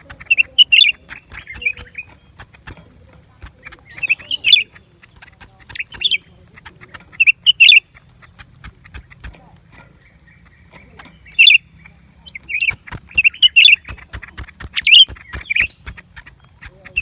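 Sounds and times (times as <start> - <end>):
bird chirping: 0.0 - 17.0
faint clicks: 0.0 - 17.0.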